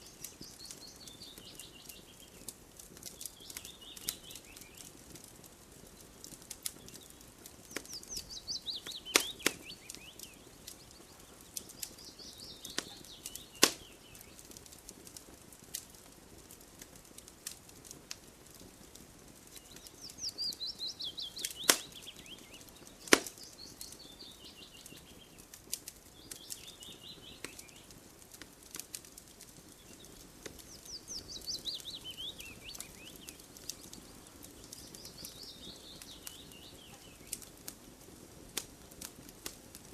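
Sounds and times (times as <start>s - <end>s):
burning wood popping: 0.0s - 39.9s
campfire crackling: 0.0s - 39.9s
songbird trilling: 7.7s - 10.5s, 19.6s - 25.0s, 30.7s - 33.4s.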